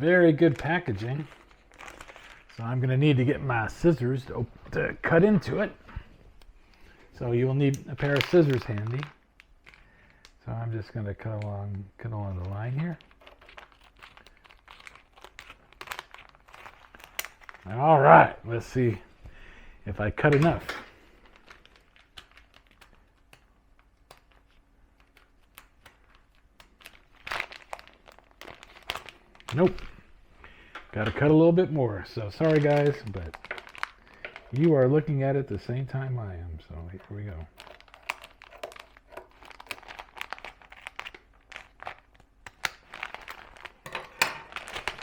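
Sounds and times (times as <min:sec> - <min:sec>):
plastic package crinkling: 0:00.0 - 0:45.0
faint plastic package clicks: 0:07.6 - 0:10.4, 0:20.2 - 0:31.2, 0:37.0 - 0:45.0
scissors cutting plastic: 0:12.3 - 0:17.6, 0:20.2 - 0:29.8, 0:36.9 - 0:45.0.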